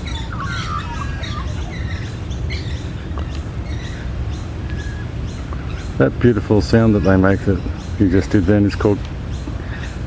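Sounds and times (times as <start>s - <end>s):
magpie carolling: 0.0s - 6.0s
steady low rumble: 0.0s - 10.0s.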